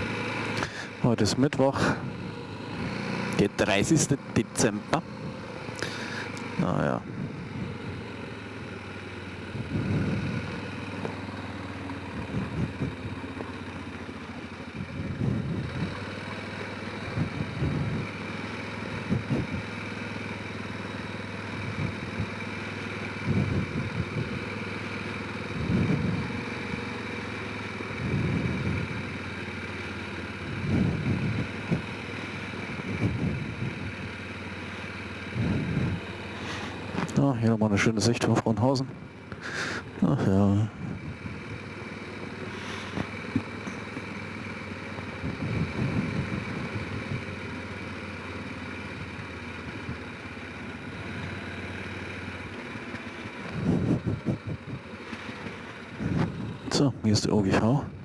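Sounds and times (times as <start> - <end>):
quad engine running: 0.0 - 58.0.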